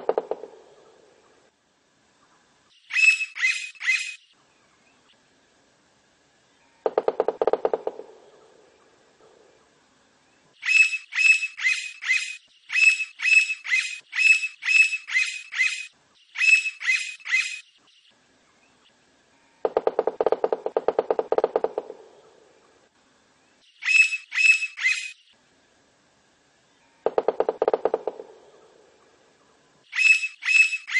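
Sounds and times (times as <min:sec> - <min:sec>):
woodpecker calling high notes: 0:02.9 - 0:04.3, 0:10.6 - 0:17.7, 0:23.8 - 0:25.2, 0:29.9 - 0:30.9.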